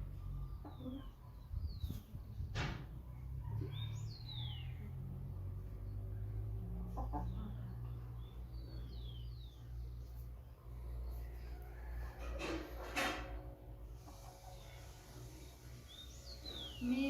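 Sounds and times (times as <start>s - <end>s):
chicken chirping: 0.4s - 2.3s, 6.8s - 10.4s, 14.0s - 17.0s.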